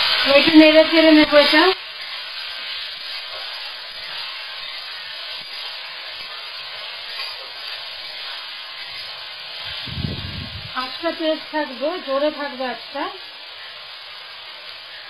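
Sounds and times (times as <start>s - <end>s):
vegetables sizzling in hot oil: 0.0s - 15.0s
spatula scraping a metal pan: 7.0s - 8.2s.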